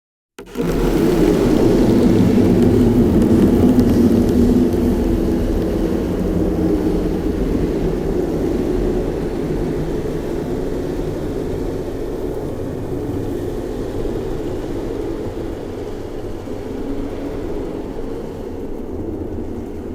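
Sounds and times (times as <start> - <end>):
metal toy low drone: 0.4 - 10.0.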